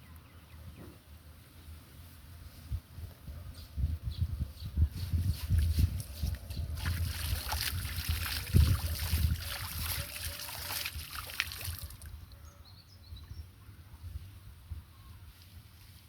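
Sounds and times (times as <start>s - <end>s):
water splashing and sloshing: 6.4s - 12.1s.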